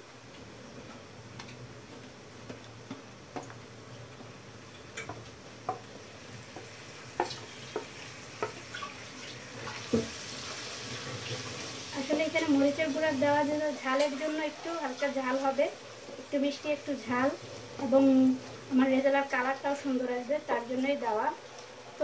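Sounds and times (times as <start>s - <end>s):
onions sizzling in hot oil: 4.2s - 22.0s
wooden spatula tapping and scraping pan: 6.5s - 8.7s.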